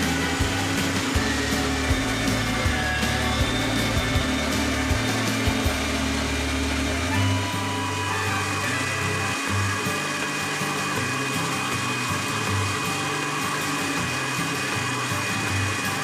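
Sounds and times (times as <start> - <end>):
background music with bass line: 0.0 - 13.4
electric grinder motor running: 0.0 - 16.0.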